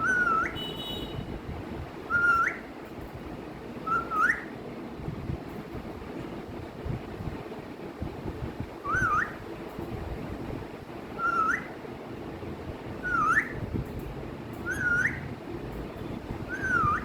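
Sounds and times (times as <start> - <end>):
parrot whistling a phrase: 11.2 - 11.7, 13.0 - 13.6, 14.7 - 15.2, 16.5 - 17.0.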